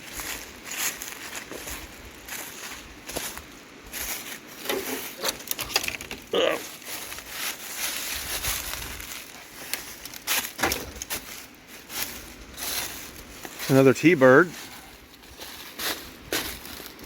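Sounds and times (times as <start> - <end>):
footsteps crunching through dry brush: 0.0 - 17.0.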